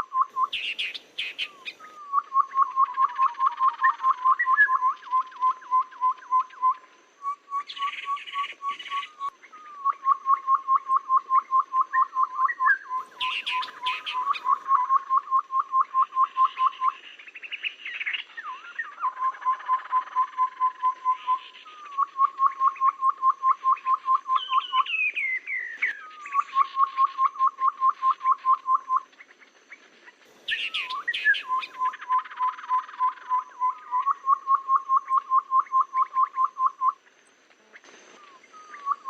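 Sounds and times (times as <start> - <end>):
falling bird chirps: 0.0 - 5.2, 12.9 - 14.8, 29.1 - 35.2
babbler whistled calls: 0.0 - 17.0, 17.6 - 29.1, 30.4 - 37.0, 38.1 - 39.0.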